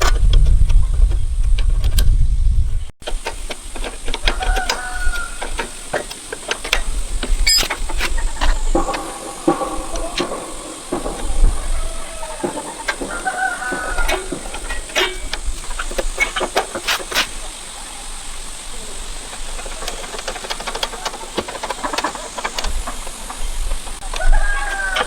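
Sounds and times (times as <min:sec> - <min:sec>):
metal tools clinking: 0:03.0 - 0:17.3
steady high hiss: 0:03.0 - 0:25.0.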